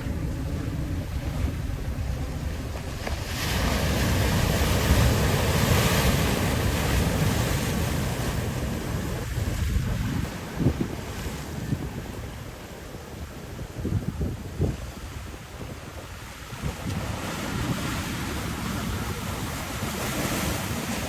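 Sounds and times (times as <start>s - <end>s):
ocean surf washing ashore: 0.0s - 21.0s
wind buffeting microphone: 0.0s - 21.0s.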